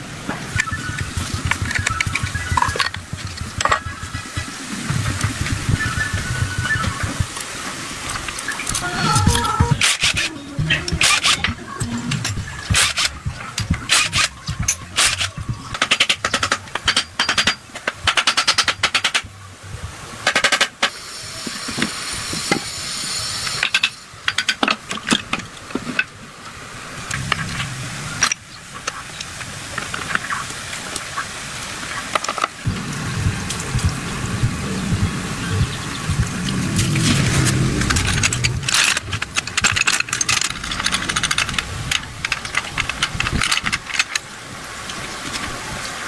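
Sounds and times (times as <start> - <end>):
tools scraping and knocking on engine: 0.0 - 7.4, 8.1 - 19.3, 35.6 - 44.3
steady hiss: 0.0 - 46.0.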